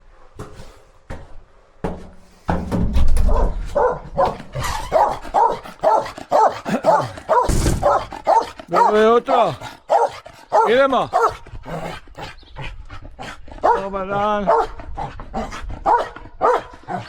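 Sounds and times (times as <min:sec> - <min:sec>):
young dog barking and yipping: 0:03.3 - 0:17.0
sharp knocks: 0:07.4 - 0:08.3.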